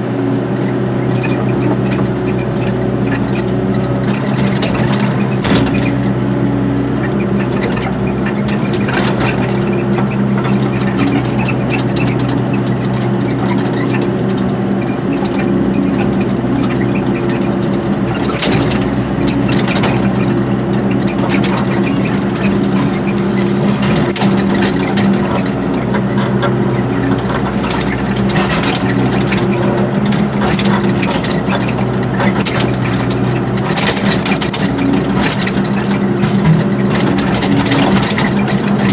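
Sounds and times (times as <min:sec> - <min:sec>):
excavator diesel engine running: 0:00.0 - 0:38.9
sharp knocks and clanks: 0:04.5 - 0:07.9.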